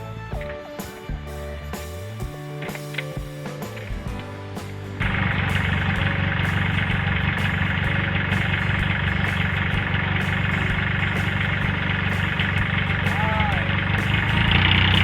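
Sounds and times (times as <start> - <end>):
tractor diesel engine running: 4.0 - 15.0.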